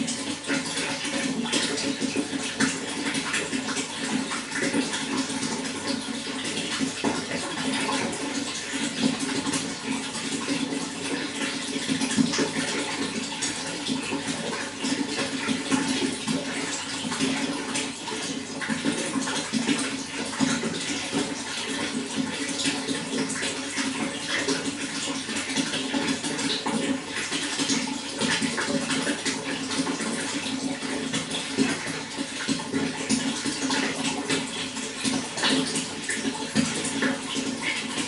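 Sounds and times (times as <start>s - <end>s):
running water splashing: 0.0s - 38.0s.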